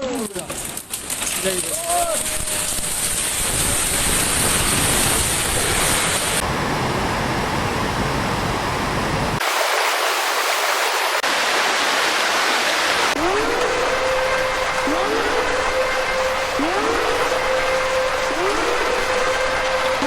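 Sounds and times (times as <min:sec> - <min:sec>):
rushing floodwater: 0:09.4 - 0:20.0.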